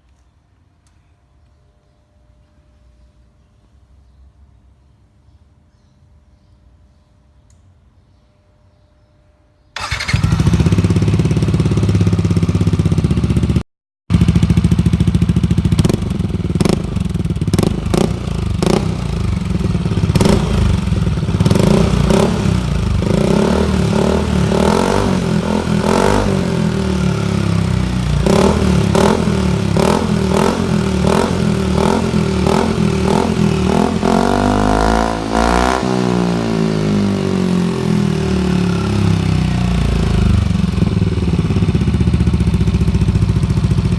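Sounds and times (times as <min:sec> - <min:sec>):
scooter engine revving: 0:09.8 - 0:43.9.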